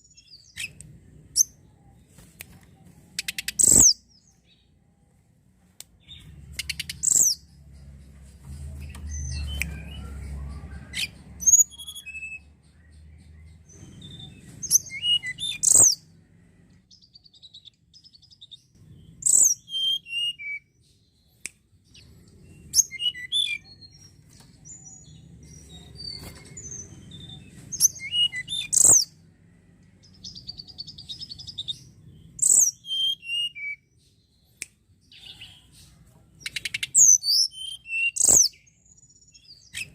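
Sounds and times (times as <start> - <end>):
bird singing descending phrases: 6.0 - 35.7.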